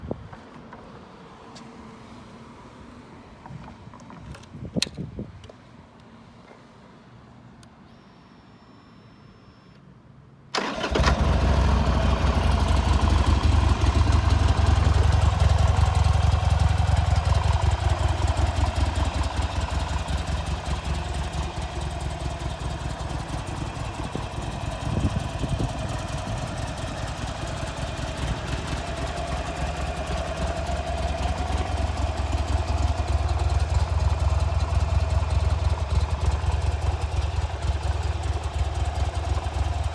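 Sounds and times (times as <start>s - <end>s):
motorcycle engine starting and idling: 10.6s - 39.9s.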